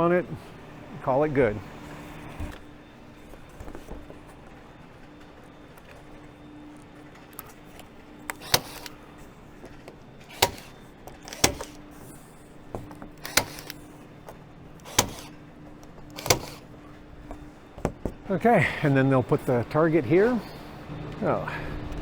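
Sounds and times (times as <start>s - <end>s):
staple gun snapping: 8.3s - 9.0s, 10.3s - 11.9s, 12.8s - 13.9s, 14.8s - 15.4s, 16.1s - 16.6s.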